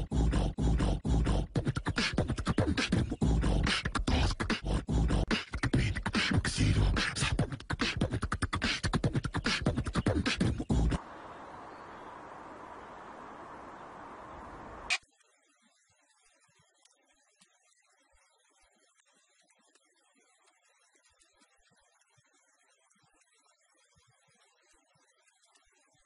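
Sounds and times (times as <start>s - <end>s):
person beatboxing: 0.0s - 11.0s.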